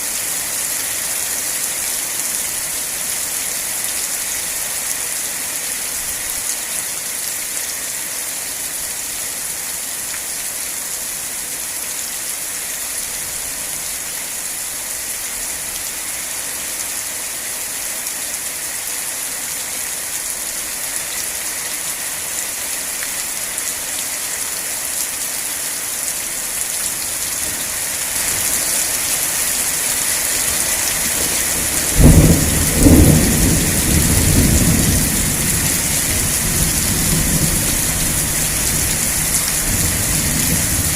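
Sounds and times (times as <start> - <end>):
steady rain hiss: 0.0 - 40.9
thunder cracking and rumbling: 31.6 - 40.9.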